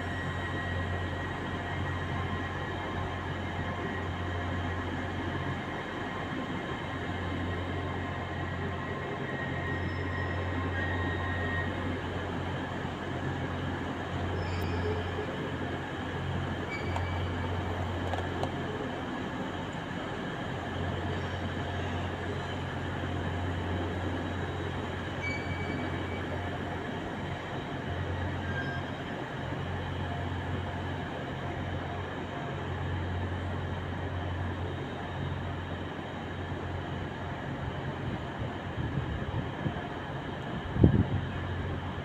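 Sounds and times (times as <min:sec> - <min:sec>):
trains humming and rumbling: 0:00.0 - 0:42.0.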